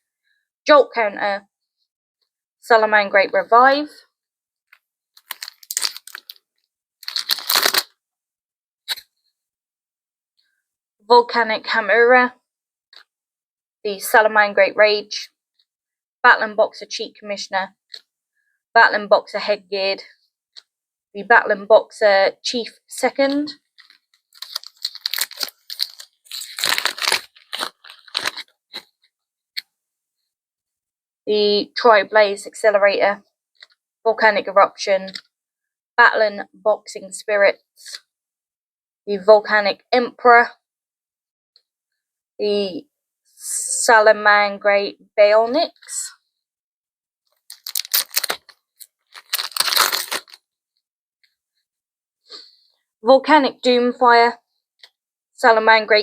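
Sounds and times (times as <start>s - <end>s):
foil wrapper crinkling: 5.2s - 6.4s, 7.0s - 7.9s, 23.8s - 28.8s, 47.5s - 50.4s.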